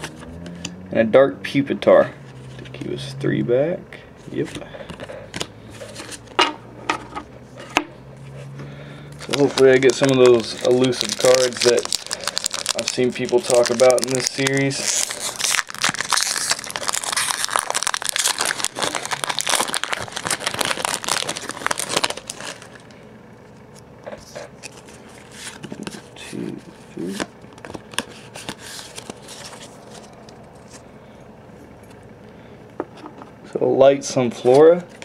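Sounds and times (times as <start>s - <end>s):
cards rustling and clicking: 4.3s - 6.4s, 9.2s - 22.9s, 24.0s - 30.8s
foil wrapper crinkling and tearing: 9.2s - 23.0s, 27.0s - 30.8s.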